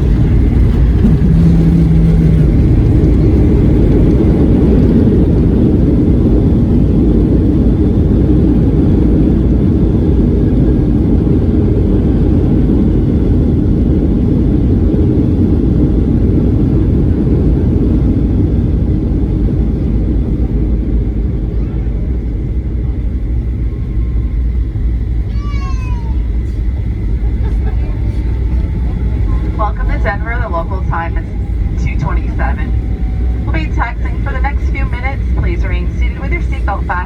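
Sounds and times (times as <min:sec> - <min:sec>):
airliner cabin rumble: 0:00.0 - 0:37.0.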